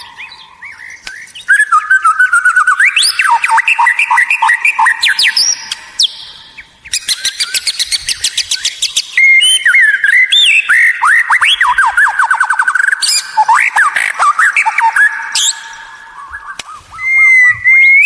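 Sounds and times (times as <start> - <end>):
bird singing varied song: 0.0 - 18.0.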